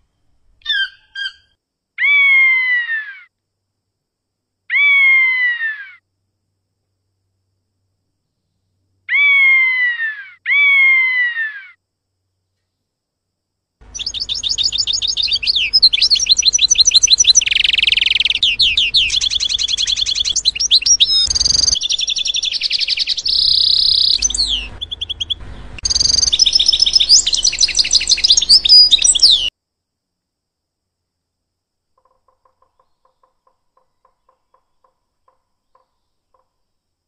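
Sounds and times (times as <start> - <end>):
bird singing high trills: 0.1 - 1.6, 13.9 - 29.5.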